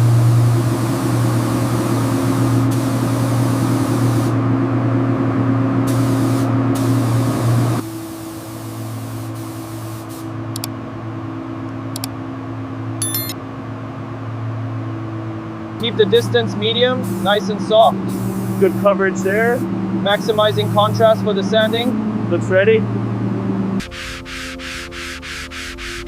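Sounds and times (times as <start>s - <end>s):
air spray gun hissing: 0.0s - 4.4s, 5.9s - 10.4s, 17.0s - 22.0s, 23.8s - 26.0s
steady low hum: 8.9s - 26.0s.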